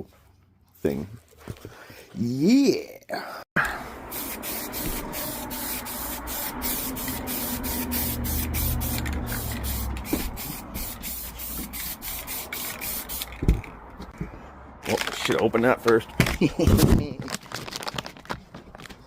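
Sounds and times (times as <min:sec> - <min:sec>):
aerosol spray can hissing: 0:04.0 - 0:13.4.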